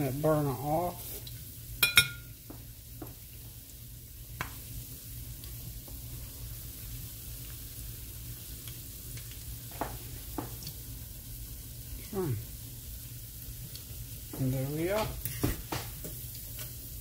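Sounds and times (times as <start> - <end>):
food sizzling in oil: 0.0 - 17.0
metal utensil clinking on pan: 1.8 - 2.3.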